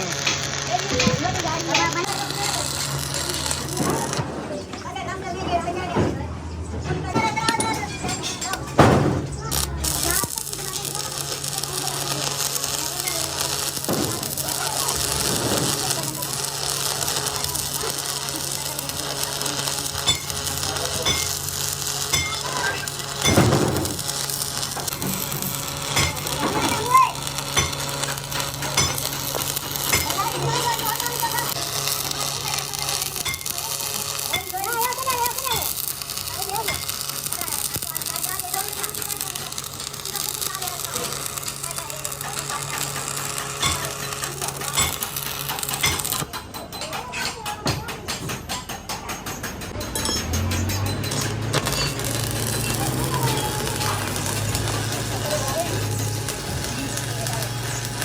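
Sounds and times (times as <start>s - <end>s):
electric arc welding crackle: 0.0s - 4.4s, 9.4s - 46.4s, 49.8s - 58.0s
hammer striking metal: 19.6s - 37.8s, 43.1s - 57.0s.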